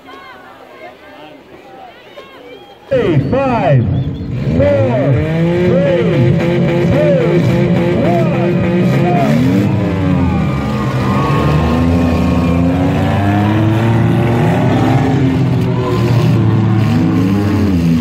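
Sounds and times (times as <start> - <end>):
car engines revving: 2.9 - 18.0.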